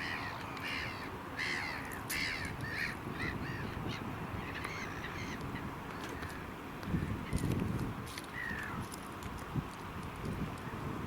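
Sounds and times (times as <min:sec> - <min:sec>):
bird calling rapidly: 0:00.0 - 0:06.4.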